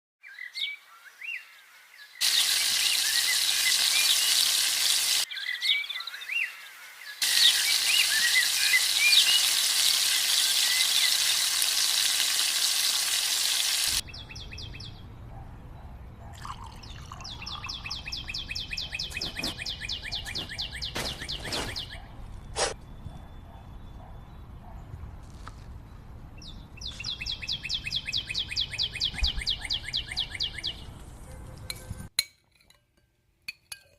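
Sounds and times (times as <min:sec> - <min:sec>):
small birds chirping: 0:00.2 - 0:12.5, 0:15.8 - 0:24.9, 0:26.4 - 0:31.9.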